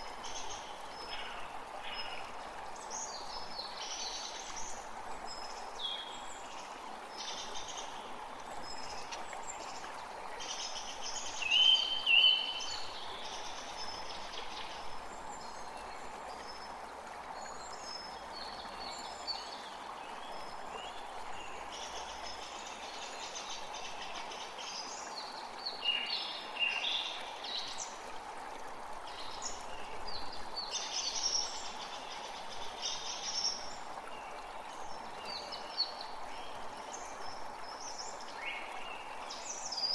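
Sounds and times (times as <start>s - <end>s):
songbirds singing and calling: 0.0s - 28.0s, 29.1s - 39.9s
creek running: 0.0s - 39.9s.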